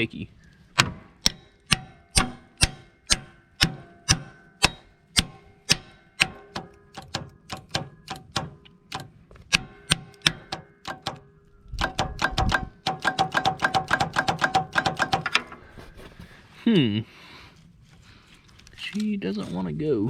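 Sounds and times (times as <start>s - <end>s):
engine cranking metallic clicks: 0.7s - 15.7s.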